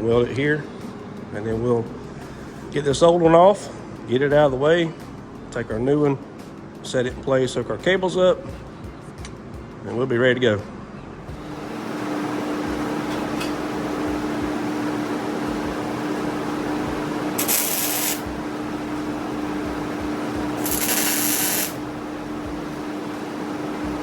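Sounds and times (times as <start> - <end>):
steady hum: 11.3 - 24.0
sharp hiss bursts: 17.4 - 18.3, 20.6 - 21.8
welding arc crackling: 17.4 - 18.4, 20.5 - 21.8.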